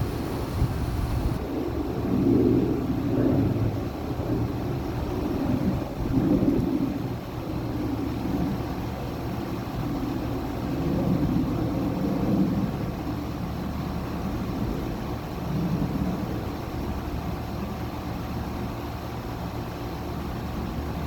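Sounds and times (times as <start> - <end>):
compressor hum: 0.0 - 1.4
condenser fan rushing: 0.0 - 21.0.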